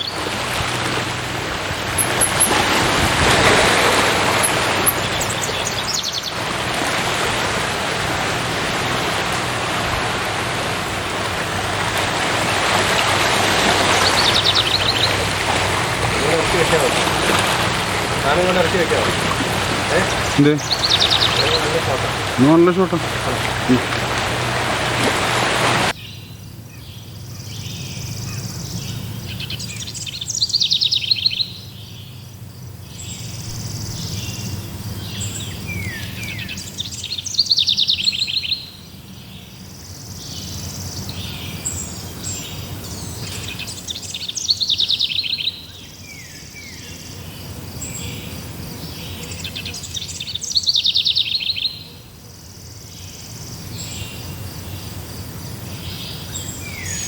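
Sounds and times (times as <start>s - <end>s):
songbird trilling: 1.8s - 2.8s, 4.0s - 6.4s, 13.8s - 23.9s.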